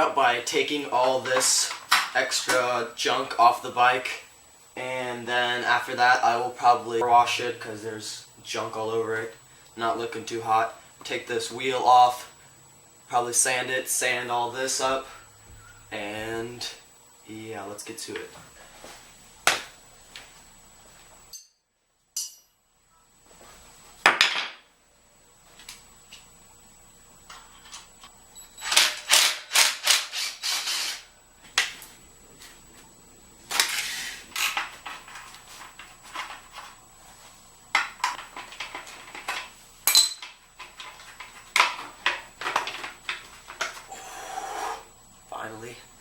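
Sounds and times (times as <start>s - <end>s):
metal tools clanking and knocking: 38.1s - 41.0s.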